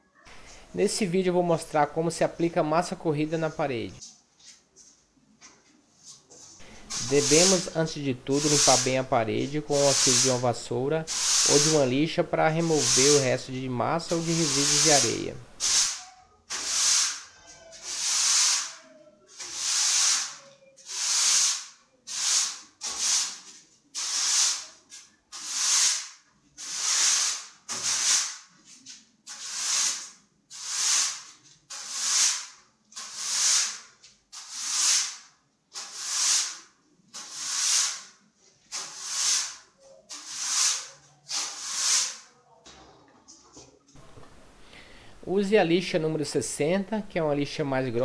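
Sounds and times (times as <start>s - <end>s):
broom scrubbing a plastered wall: 5.9s - 42.4s.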